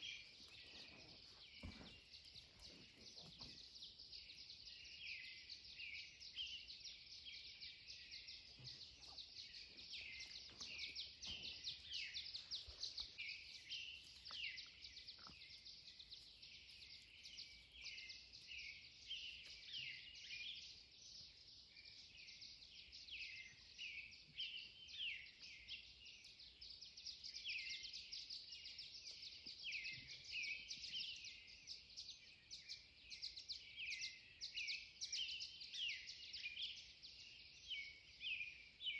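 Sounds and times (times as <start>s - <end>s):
many songbirds singing: 0.0s - 38.9s.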